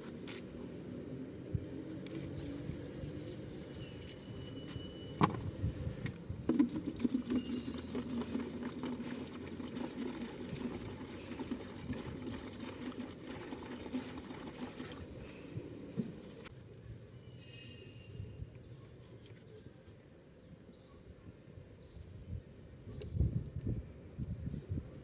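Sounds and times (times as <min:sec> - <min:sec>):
birds pecking food: 0:06.5 - 0:15.6.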